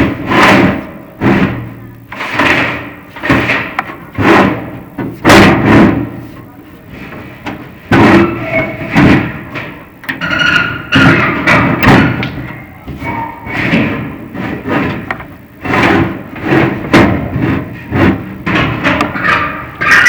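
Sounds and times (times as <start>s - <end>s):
sharp knocks and thuds: 0.0s - 6.2s, 6.9s - 20.0s.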